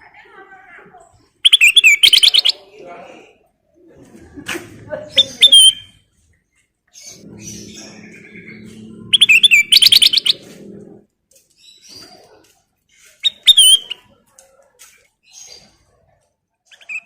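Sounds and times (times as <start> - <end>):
bulbul singing chattering notes: 7.1 - 10.8
faint low hum: 7.1 - 11.2.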